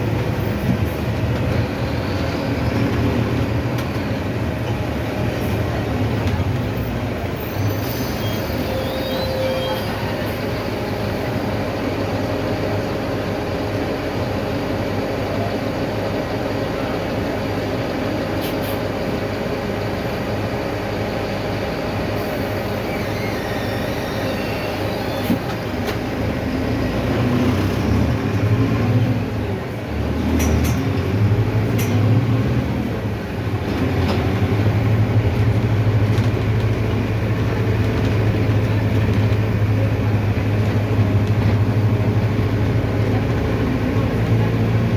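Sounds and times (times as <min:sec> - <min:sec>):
bus diesel engine droning: 0:00.0 - 0:44.9
road noise: 0:00.0 - 0:44.9.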